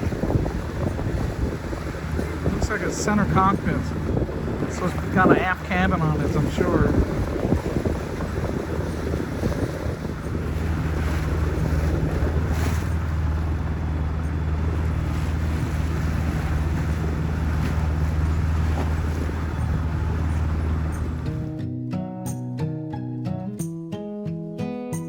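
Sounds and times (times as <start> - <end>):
boat engine humming: 0.0 - 21.6
water rushing along hull: 0.0 - 21.6
wind buffeting microphone: 0.0 - 21.6
guitar music: 19.5 - 25.0.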